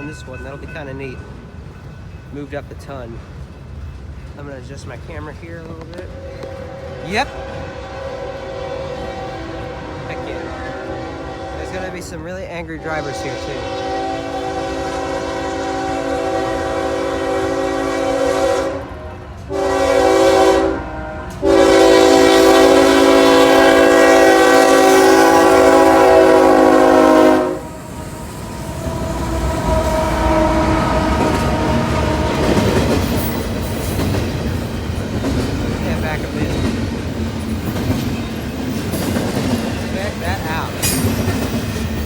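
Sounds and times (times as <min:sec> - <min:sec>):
train rumble and wheel clatter: 0:00.0 - 0:42.0
locomotive air horn: 0:06.2 - 0:12.1, 0:12.8 - 0:32.4.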